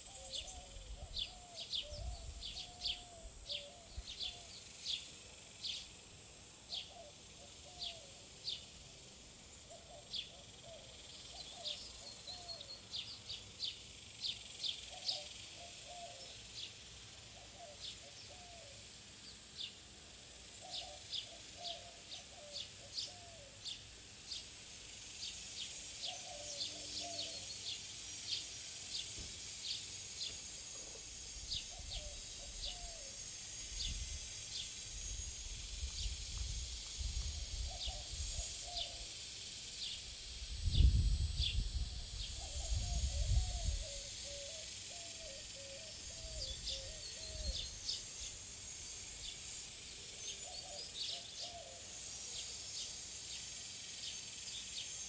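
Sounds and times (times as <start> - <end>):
small birds chirping: 0.0 - 19.8, 20.4 - 55.0
wind rumble on microphone: 40.5 - 44.0.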